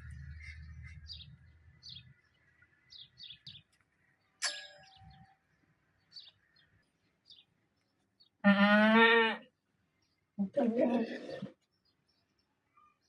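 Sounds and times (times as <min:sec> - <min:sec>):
small birds chirping: 0:00.0 - 0:08.5, 0:09.4 - 0:13.0
sharp ringing clink: 0:04.4 - 0:05.2.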